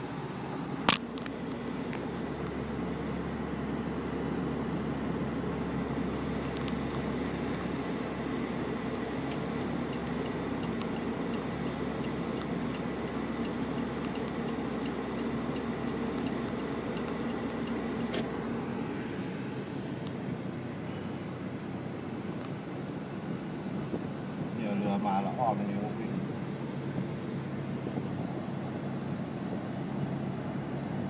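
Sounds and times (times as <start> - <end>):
vehicle engine drone: 0.0 - 31.0
light regular ticking: 8.7 - 18.4.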